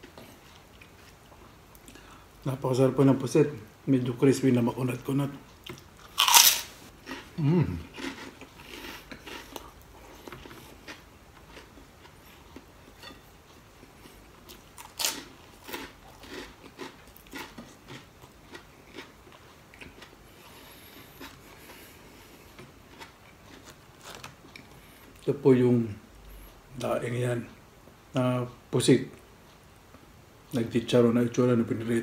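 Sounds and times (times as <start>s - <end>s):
crunchy chewing: 5.6s - 25.2s.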